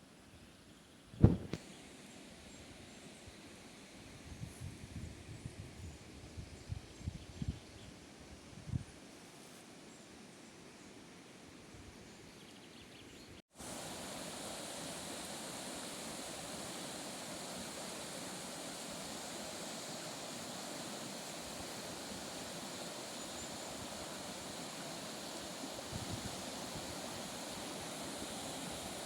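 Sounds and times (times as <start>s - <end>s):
steady rushing hiss: 1.2s - 4.9s, 13.5s - 29.0s.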